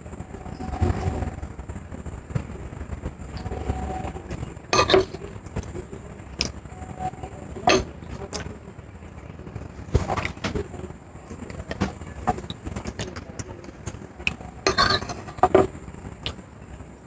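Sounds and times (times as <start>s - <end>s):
dishes and cutlery clinking: 4.3s - 5.7s, 7.6s - 8.5s, 11.4s - 15.8s.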